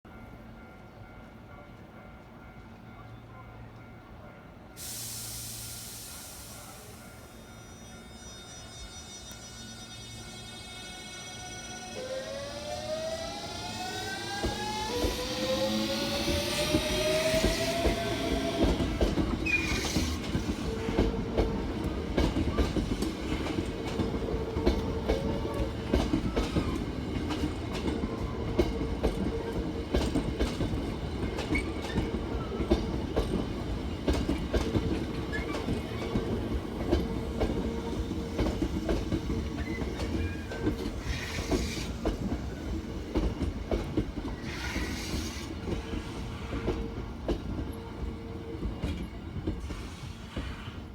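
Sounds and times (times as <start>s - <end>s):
train inverter whine: 5.0s - 50.0s.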